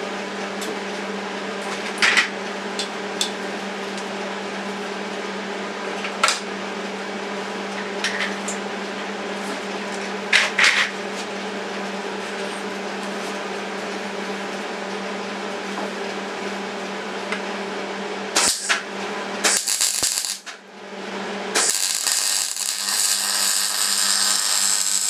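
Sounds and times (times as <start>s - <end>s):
electric welder humming: 18.3s - 20.6s, 21.5s - 25.0s
welding hiss: 18.4s - 18.8s, 19.4s - 20.5s, 21.6s - 25.0s
welding crackles and metallic clicks: 18.4s - 20.6s, 21.6s - 25.0s.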